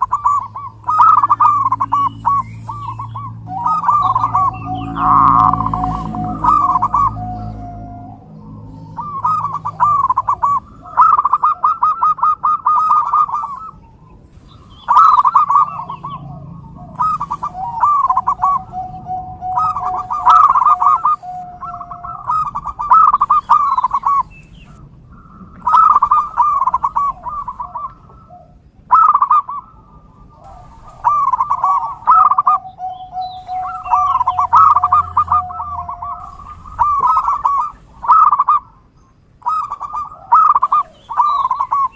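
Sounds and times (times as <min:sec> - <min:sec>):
doves cooing: 0:00.0 - 0:41.9
long steady low note: 0:00.8 - 0:10.9, 0:15.2 - 0:22.1.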